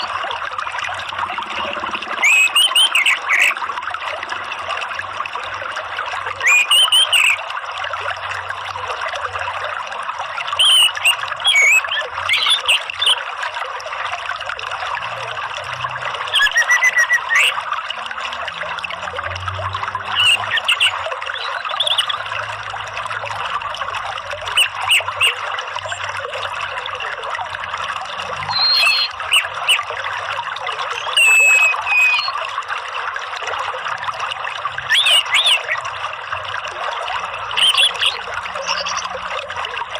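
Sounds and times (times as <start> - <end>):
trickling water: 0.0 - 39.9
bird chirps and whistles: 2.2 - 3.5, 6.4 - 7.4, 10.6 - 13.2, 16.4 - 17.5, 28.4 - 29.8, 31.0 - 32.4, 34.9 - 35.8.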